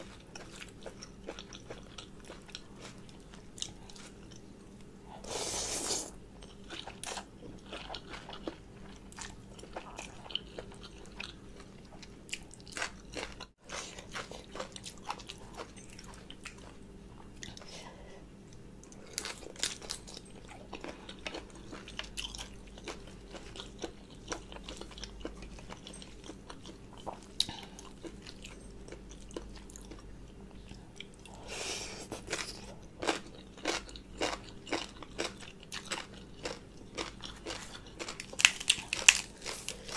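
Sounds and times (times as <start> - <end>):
wet chewing and crunching: 0.0 - 4.9, 6.4 - 17.7, 18.5 - 31.4, 32.1 - 39.9.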